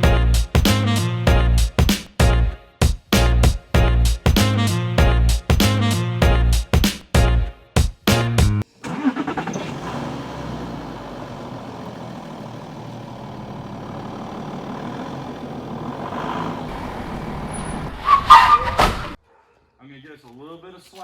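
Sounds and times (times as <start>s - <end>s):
music intro: 0.0s - 8.7s
vehicle engine running: 9.3s - 18.0s.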